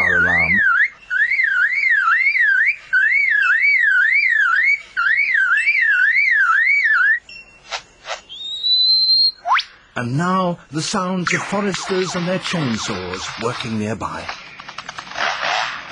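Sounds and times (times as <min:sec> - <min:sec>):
bird mimicking car alarm: 0:00.0 - 0:07.6
sharp clicks: 0:11.6 - 0:15.5.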